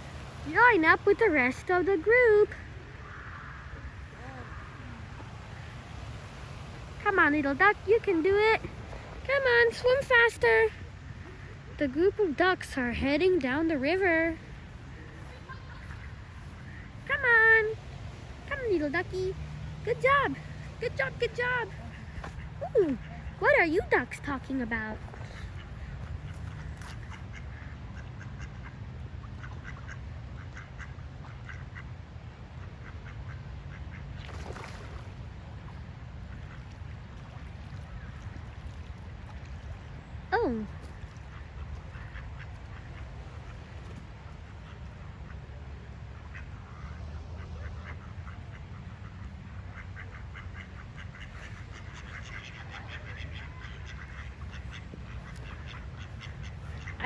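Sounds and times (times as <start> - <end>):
ducks quacking: 7.1 - 32.0, 39.4 - 57.0.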